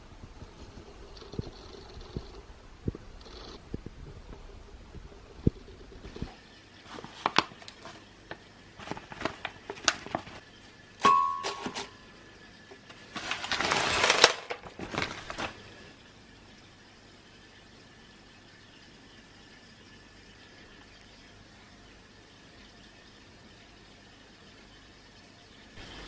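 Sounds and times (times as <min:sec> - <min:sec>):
short ringing ding: 0:11.0 - 0:12.0.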